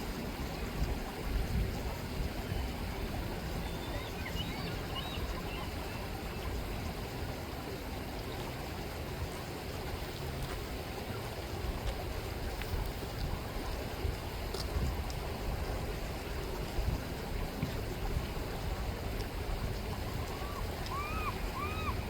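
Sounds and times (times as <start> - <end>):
river water rushing: 0.0 - 22.0
faint high bird calls: 3.6 - 6.0, 19.9 - 22.0.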